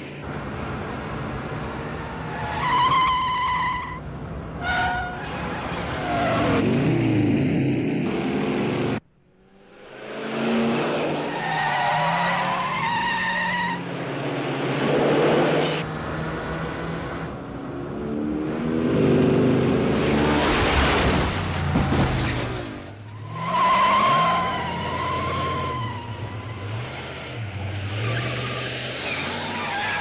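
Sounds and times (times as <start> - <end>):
tyre squeals and skids: 2.2 - 4.0, 11.1 - 13.8, 22.2 - 30.0
car and motorcycle engines revving: 14.0 - 21.0.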